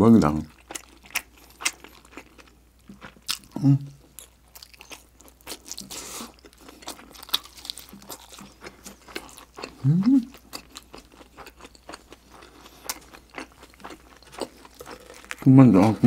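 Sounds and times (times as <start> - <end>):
crispy food chewing crunches: 0.1 - 16.0
person humming: 3.6 - 4.0, 9.8 - 10.3.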